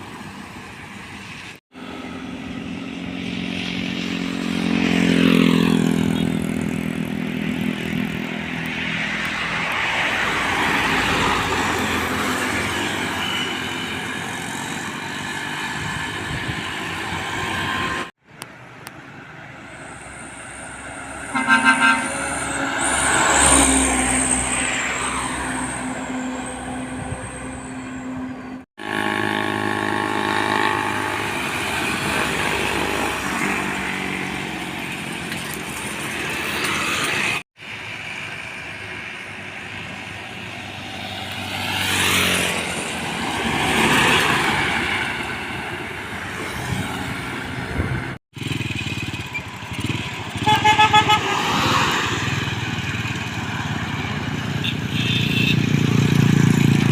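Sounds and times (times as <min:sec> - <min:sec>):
vehicles driving past: 0:00.0 - 0:56.9
vehicle horn toots: 0:21.3 - 0:22.5, 0:50.4 - 0:51.5, 0:54.6 - 0:55.7.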